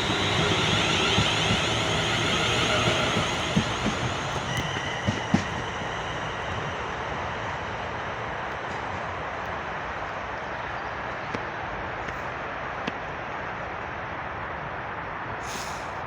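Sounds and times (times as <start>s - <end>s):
electric train running: 0.0s - 10.1s.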